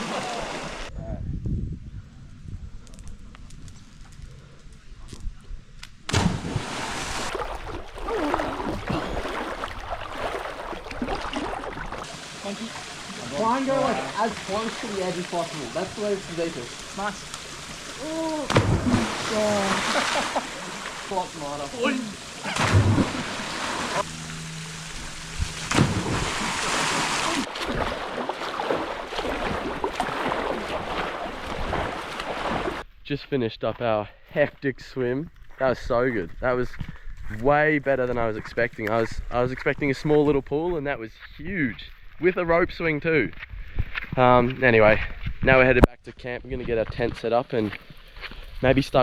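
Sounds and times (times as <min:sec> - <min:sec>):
big splash into water: 0:06.1 - 0:13.3, 0:17.7 - 0:21.8, 0:22.4 - 0:24.1, 0:25.3 - 0:32.8
churning splashing water: 0:06.1 - 0:32.8.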